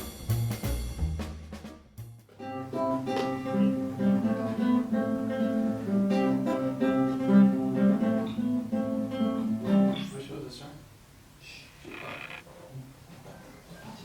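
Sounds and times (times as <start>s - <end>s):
acoustic guitar plucked notes: 2.3s - 10.1s.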